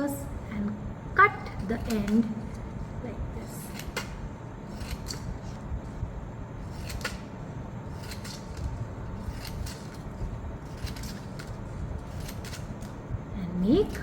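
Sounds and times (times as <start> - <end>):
scissors snipping paper: 1.6 - 2.6, 3.6 - 5.6, 6.6 - 7.3, 7.9 - 13.0.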